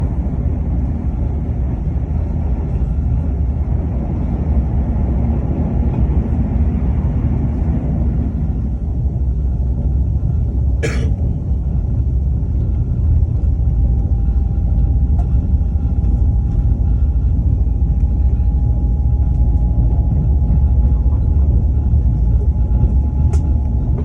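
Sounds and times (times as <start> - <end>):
train rumbling: 0.0 - 24.0
faint steady whine: 7.3 - 24.0.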